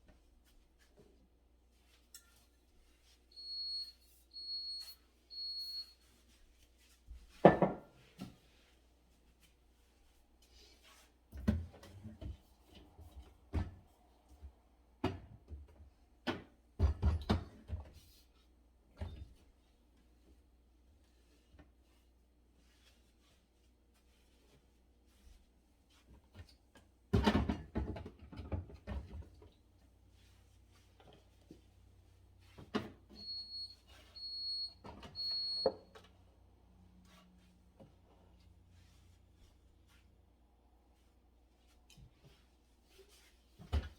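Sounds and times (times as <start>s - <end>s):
containers knocking on fridge shelves: 7.4s - 7.9s
items knocking and clattering: 7.4s - 8.0s, 16.3s - 17.9s, 27.1s - 29.4s.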